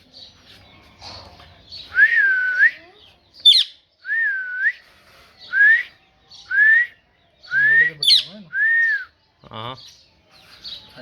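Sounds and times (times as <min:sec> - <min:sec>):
parrot high chirp: 0:03.4 - 0:03.8, 0:08.0 - 0:08.3.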